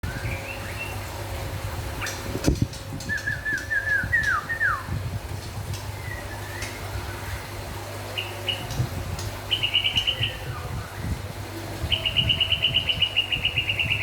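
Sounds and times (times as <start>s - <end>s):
bird singing whistled notes: 3.0s - 4.9s.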